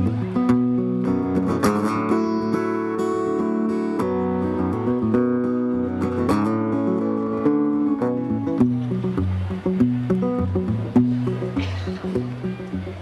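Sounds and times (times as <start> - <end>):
strummed acoustic guitar chords: 0.0 - 13.0.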